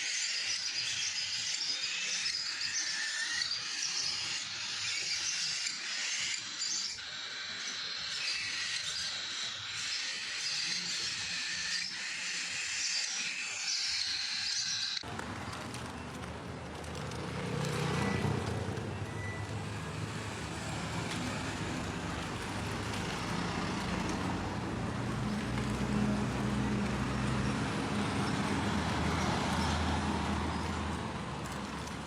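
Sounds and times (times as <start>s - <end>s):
road traffic hum and hiss: 15.0s - 32.0s.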